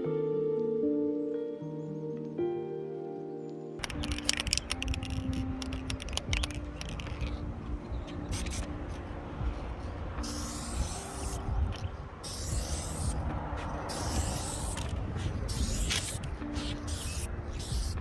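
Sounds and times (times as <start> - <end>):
clicks and scrapes: 3.8 - 7.4
highway traffic rumble: 3.8 - 18.0
spray can hissing: 3.8 - 18.0.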